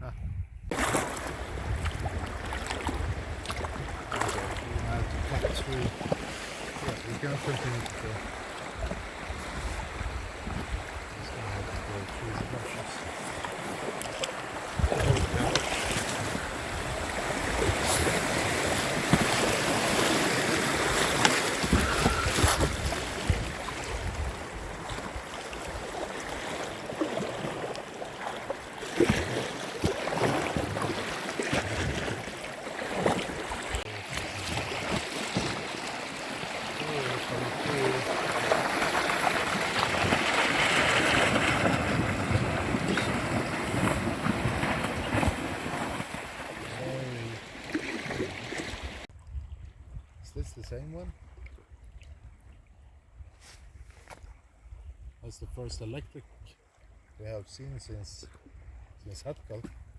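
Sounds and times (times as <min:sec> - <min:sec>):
wind buffeting microphone: 0:00.0 - 0:26.1, 0:36.9 - 0:46.7, 0:48.7 - 0:53.9
water splashing and rushing: 0:00.7 - 0:49.2
knocks and scrapes against boat: 0:03.4 - 0:08.1, 0:14.8 - 0:16.4, 0:17.4 - 0:23.5.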